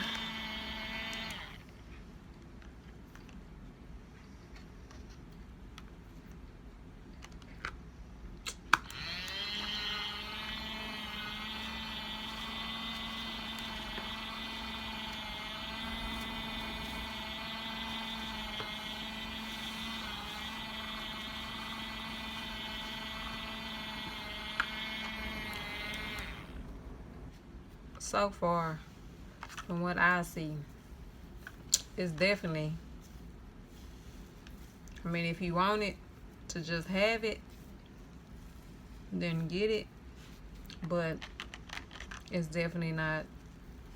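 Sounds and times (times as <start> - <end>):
small motor whirring hum: 0.0 - 1.7, 8.7 - 26.7.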